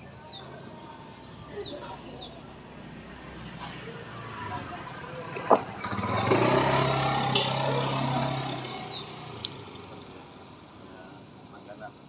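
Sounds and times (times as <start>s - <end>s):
vehicle passing on road: 1.8s - 11.0s
high bird chirps: 5.0s - 12.0s.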